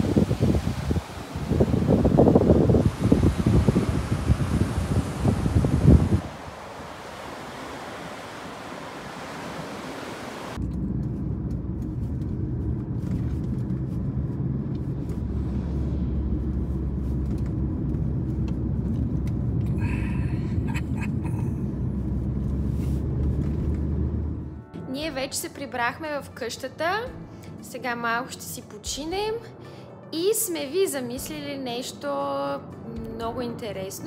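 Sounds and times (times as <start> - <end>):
wind and surf: 0.0 - 10.6
car engine and road rumble: 0.0 - 24.7.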